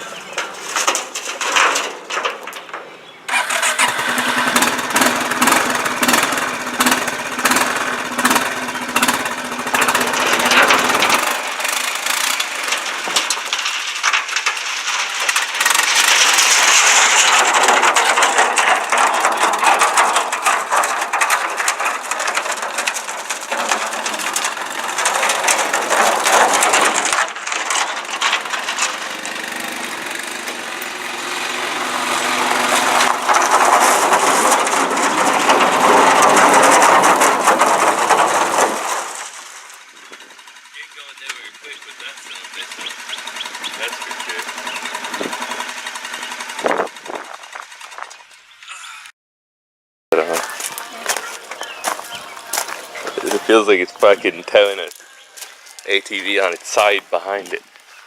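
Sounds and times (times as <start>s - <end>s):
wood fire crackling and popping: 4.9s - 39.8s, 50.3s - 57.9s.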